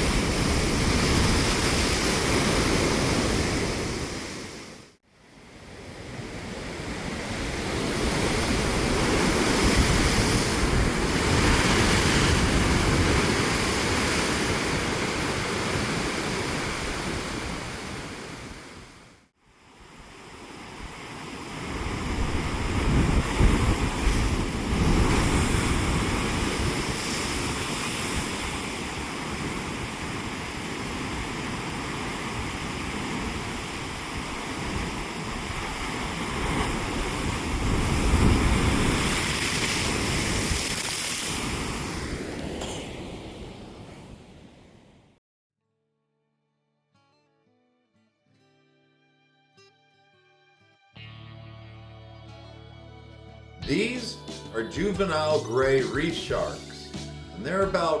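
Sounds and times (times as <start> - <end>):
breaking waves: 0.0 - 5.0, 5.9 - 18.9, 20.0 - 44.3.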